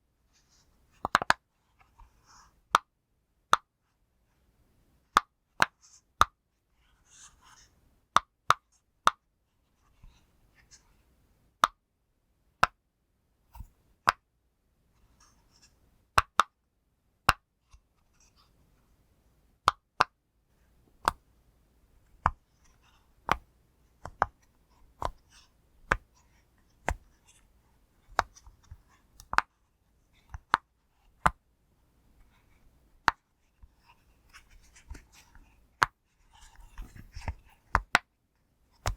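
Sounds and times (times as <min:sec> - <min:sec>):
faint handling sounds: 0:32.1 - 0:37.8.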